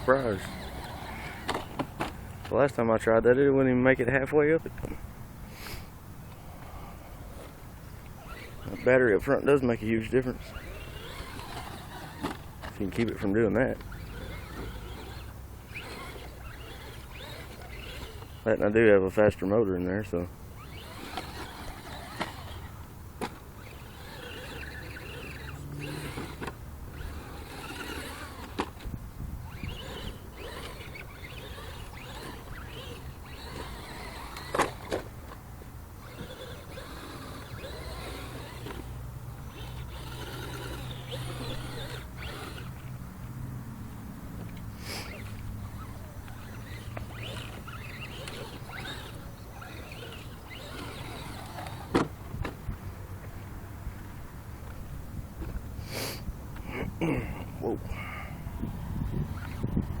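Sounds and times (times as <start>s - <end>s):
electric motor and gears whining: 0.0s - 60.0s.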